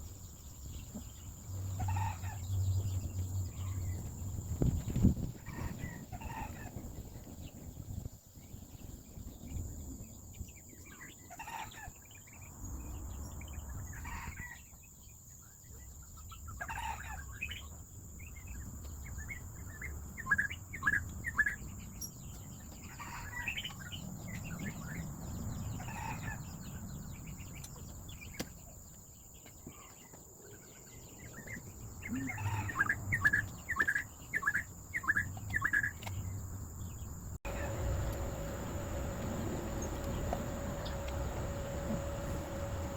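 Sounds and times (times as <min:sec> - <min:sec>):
chickens clucking: 0:05.4 - 0:06.9
low steady hum: 0:37.4 - 0:42.9.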